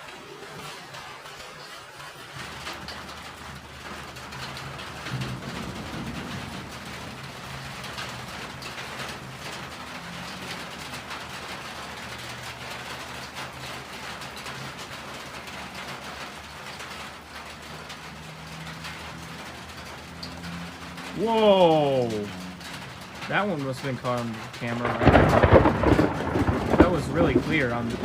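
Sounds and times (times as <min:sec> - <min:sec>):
rain pattering on surfaces: 0:00.0 - 0:28.0.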